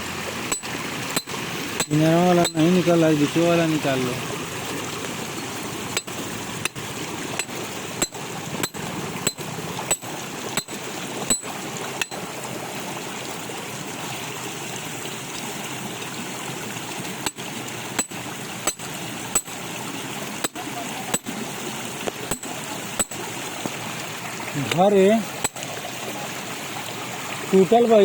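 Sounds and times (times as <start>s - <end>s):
water rushing: 0.0s - 28.0s
sharp knocks: 0.5s - 2.8s, 5.1s - 12.3s, 17.2s - 19.6s, 22.1s - 23.3s.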